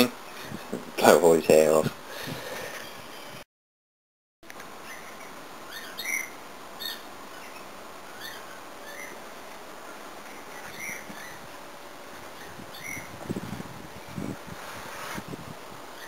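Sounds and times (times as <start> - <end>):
faint steady hiss: 0.0 - 3.4, 4.4 - 16.0
small birds chirping: 4.7 - 14.3.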